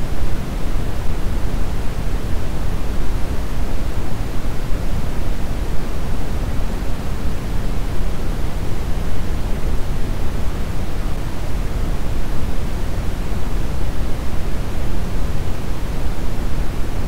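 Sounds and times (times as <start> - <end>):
brown noise hiss: 0.0 - 17.0.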